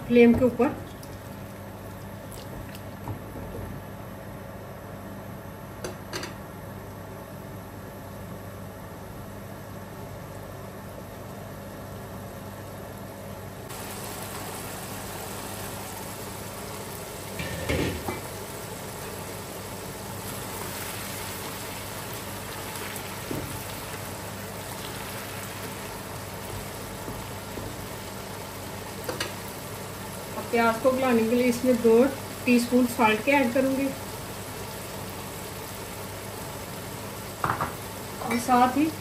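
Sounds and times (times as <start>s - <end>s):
onions sizzling in oil: 13.7s - 39.0s
knocks on pot: 37.4s - 37.8s.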